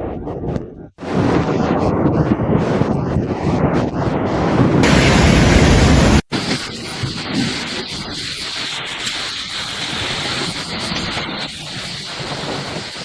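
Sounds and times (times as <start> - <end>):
wind: 0.0 - 13.0
rain: 4.8 - 13.0.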